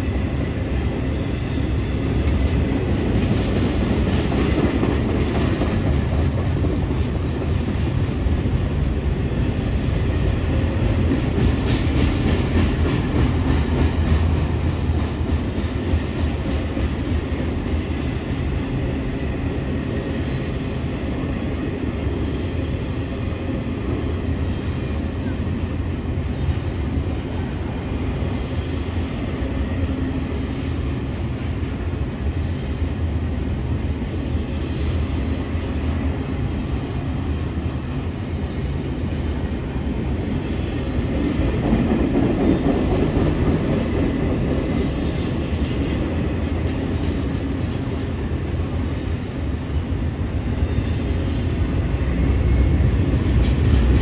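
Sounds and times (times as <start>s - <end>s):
train wheels rumbling on rails: 0.0s - 54.0s
wheels clickety-clack: 2.2s - 8.5s, 10.6s - 17.4s, 41.1s - 48.1s.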